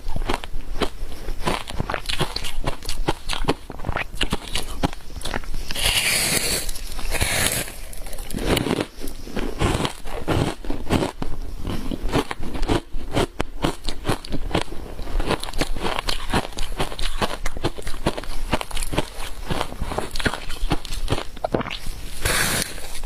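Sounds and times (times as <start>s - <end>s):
chewing crunchy ice: 0.0s - 21.9s
hissing crumble: 4.8s - 9.8s.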